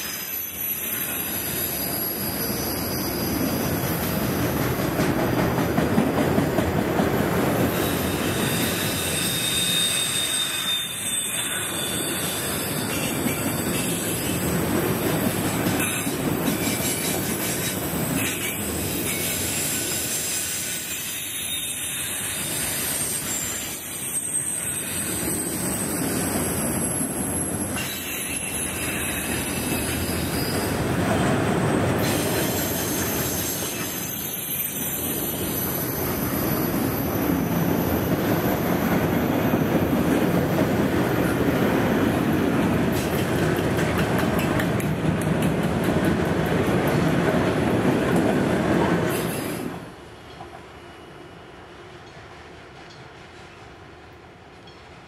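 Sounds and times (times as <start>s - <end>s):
high-pitched wheel squeal: 0.0s - 3.7s, 7.8s - 14.4s, 15.8s - 30.8s, 32.0s - 38.2s
steel wheels rumbling on rail: 0.0s - 55.0s.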